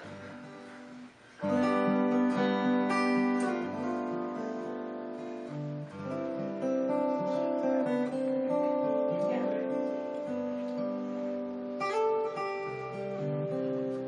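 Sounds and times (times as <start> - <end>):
acoustic guitar fingerstyle: 0.0 - 14.0.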